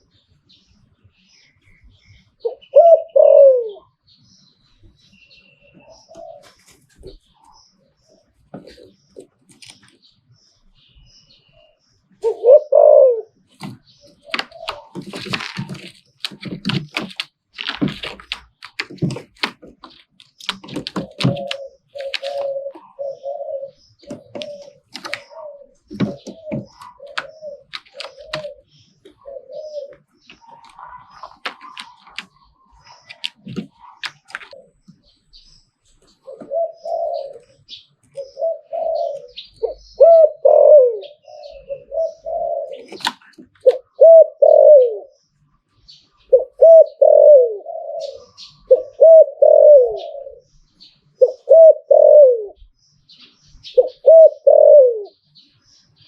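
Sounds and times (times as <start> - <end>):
dove cooing: 2.4 - 4.0, 5.6 - 7.6, 8.2 - 9.8, 12.2 - 35.2, 36.1 - 45.2, 46.2 - 52.7, 53.6 - 55.2
sharp clicks and knocks: 13.6 - 22.4, 24.0 - 29.2, 29.9 - 32.4, 33.0 - 35.0.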